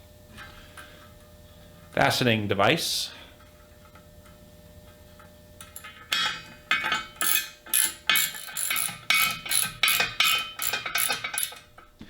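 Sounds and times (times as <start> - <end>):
ratchet wrench strokes: 7.2 - 11.6.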